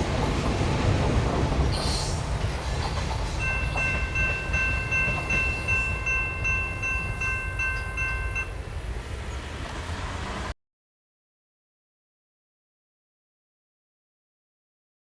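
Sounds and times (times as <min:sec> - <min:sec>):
railroad bell ringing: 0:00.0 - 0:10.5
train rolling by: 0:00.0 - 0:10.6.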